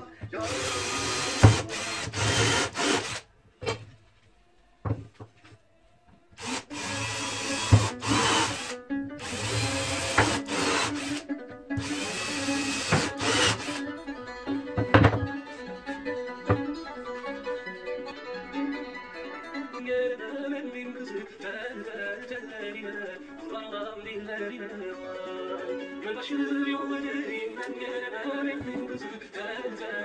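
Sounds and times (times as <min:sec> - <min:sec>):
power tool working material: 0:00.4 - 0:03.2, 0:06.4 - 0:11.2, 0:11.8 - 0:13.8.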